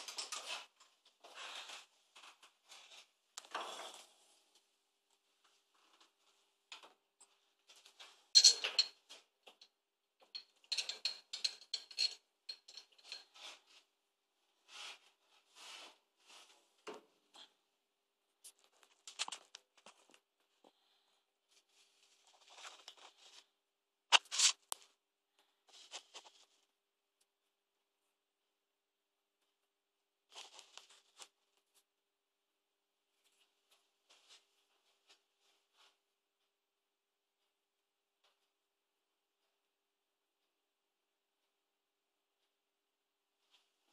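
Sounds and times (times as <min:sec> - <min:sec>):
small objects clicking and scraping: 0:24.1 - 0:24.9.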